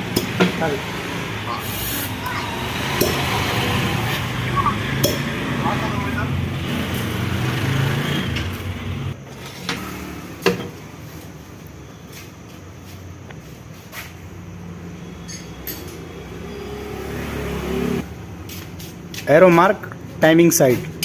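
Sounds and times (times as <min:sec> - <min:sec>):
sharp metallic knocks: 0:02.7 - 0:03.7, 0:04.9 - 0:05.4.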